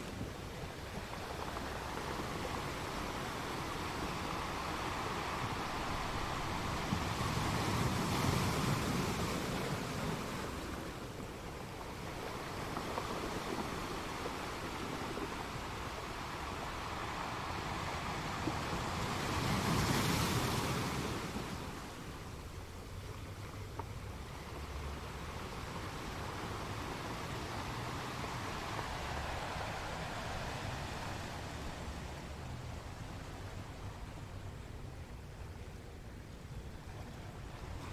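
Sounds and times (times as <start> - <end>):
ocean surf rushing: 0.0 - 37.9.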